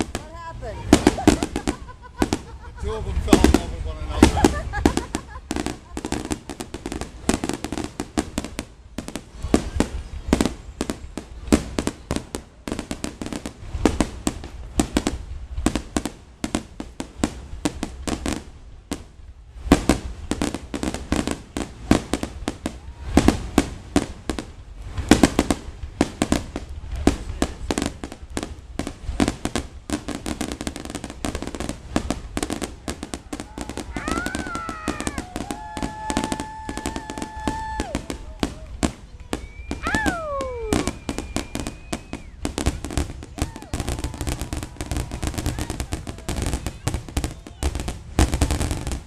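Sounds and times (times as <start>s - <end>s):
fireworks bangs and crackles: 0.0s - 49.0s.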